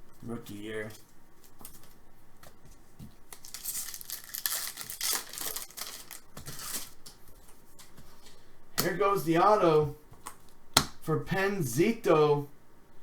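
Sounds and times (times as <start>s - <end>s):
plastic wrapper crinkling and tearing: 3.3s - 7.2s.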